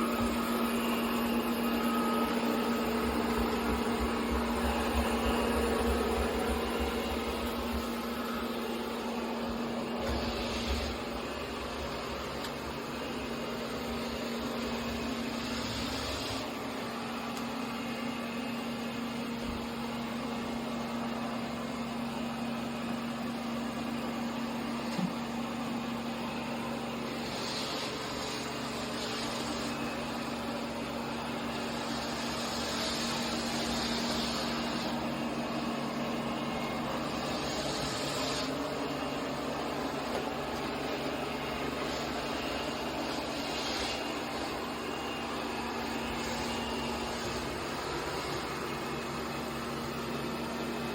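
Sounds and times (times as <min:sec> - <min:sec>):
robot vacuum cleaner whirring: 0:00.0 - 0:50.9.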